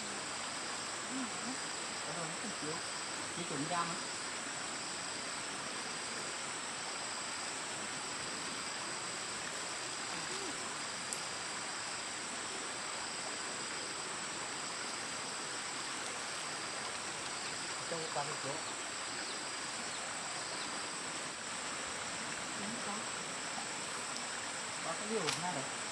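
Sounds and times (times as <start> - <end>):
even hiss: 0.0 - 25.9
insect chirring in pulses: 0.0 - 25.9
insects trilling: 0.0 - 25.9
small click: 25.2 - 25.5.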